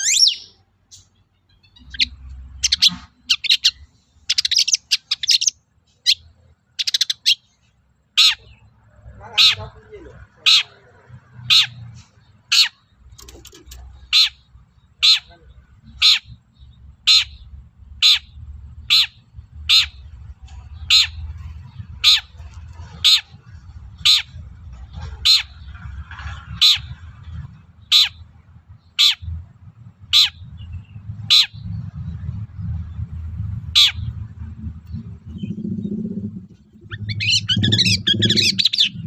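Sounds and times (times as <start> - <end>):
bird harsh grating calls: 0.0 - 29.4, 30.0 - 32.0, 33.6 - 39.0
low rumble: 15.3 - 39.0.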